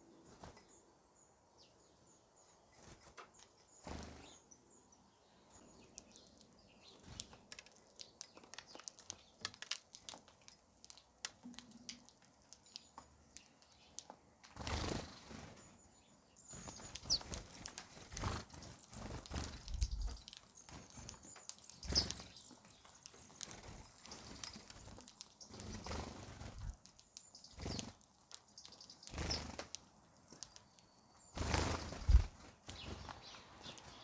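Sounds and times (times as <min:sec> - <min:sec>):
high bird chirps: 0:15.0 - 0:34.0
bird wings flapping: 0:16.6 - 0:22.4, 0:31.4 - 0:34.0.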